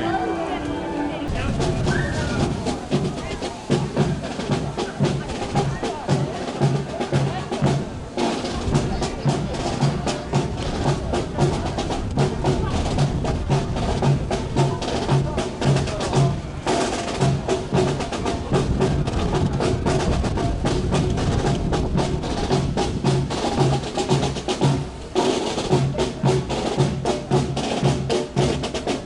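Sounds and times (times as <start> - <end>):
low drum hits: 1.2 - 16.4
rapid sharp drum strikes: 1.3 - 29.0.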